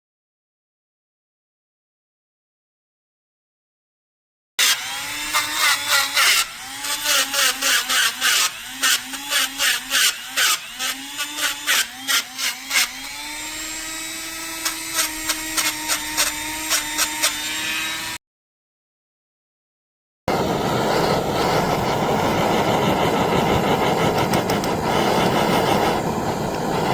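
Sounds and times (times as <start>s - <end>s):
small power tool motor running: 4.6s - 18.2s, 20.3s - 26.9s
tool scraping metal: 4.6s - 18.2s, 20.3s - 26.9s.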